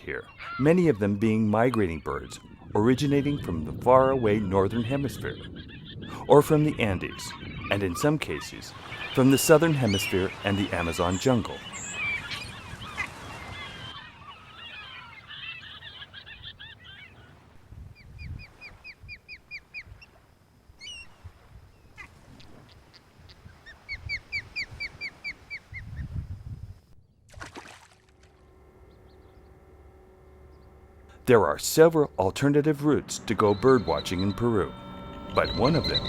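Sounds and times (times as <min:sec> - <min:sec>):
waterbirds calling: 0:00.0 - 0:36.0
steady hum: 0:28.0 - 0:36.0.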